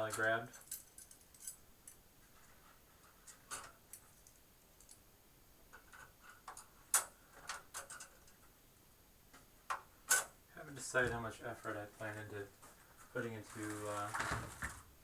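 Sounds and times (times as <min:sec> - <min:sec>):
metal slot covers clicking: 0:05.8 - 0:08.5, 0:09.7 - 0:10.4.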